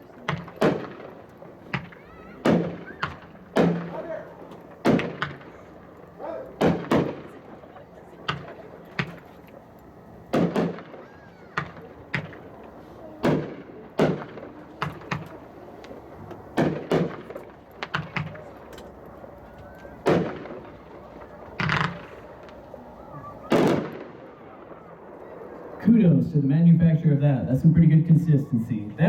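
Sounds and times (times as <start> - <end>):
firework bangs: 0.1 - 9.4, 10.2 - 18.7, 19.8 - 25.0.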